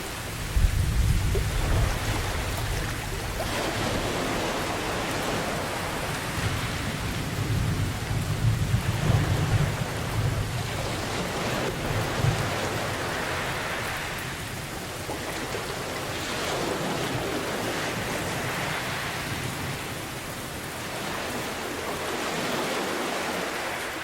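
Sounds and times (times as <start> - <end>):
heavy rain: 0.0 - 24.0
thunder rumbling: 0.1 - 14.0.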